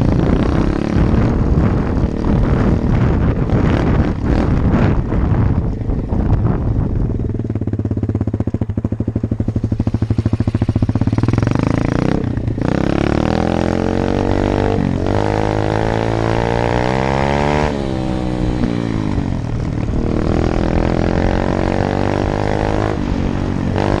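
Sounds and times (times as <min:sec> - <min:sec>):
dirt bike engine revving: 0:08.9 - 0:24.0.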